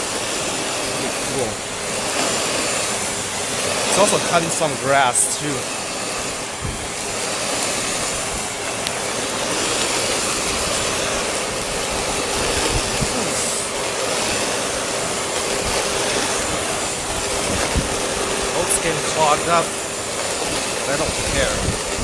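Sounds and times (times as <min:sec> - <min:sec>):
rushing air: 0:00.0 - 0:22.0
vacuum cleaner motor whining: 0:00.0 - 0:22.0.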